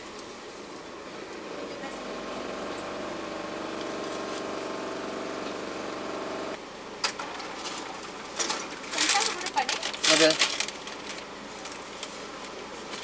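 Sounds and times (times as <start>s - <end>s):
car engine idling: 1.3s - 6.6s.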